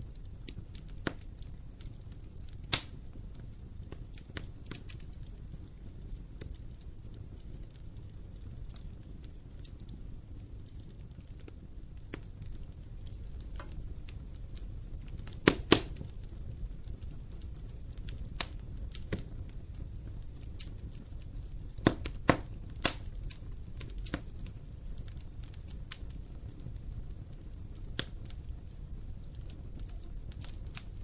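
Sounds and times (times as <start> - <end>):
fire popping: 0.0 - 31.0
low rumble of flames: 0.0 - 31.0
wood fire crackling: 0.0 - 31.0.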